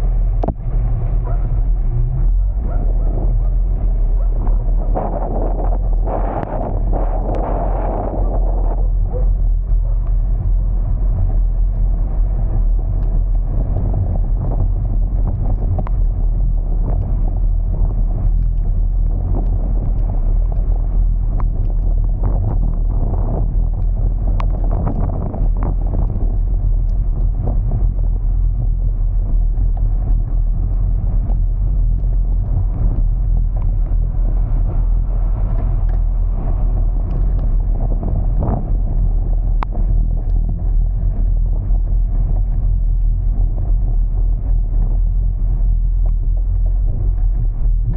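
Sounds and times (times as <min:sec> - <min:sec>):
car rumbling in motion: 0:00.0 - 0:47.9
light ticks and clicks: 0:09.6 - 0:43.8.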